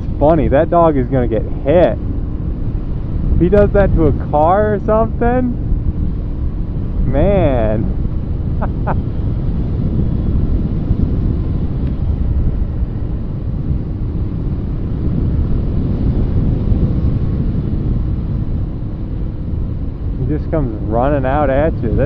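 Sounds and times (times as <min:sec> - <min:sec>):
motorcycle engine running: 0:00.0 - 0:22.0
wind rushing on microphone: 0:00.0 - 0:22.0.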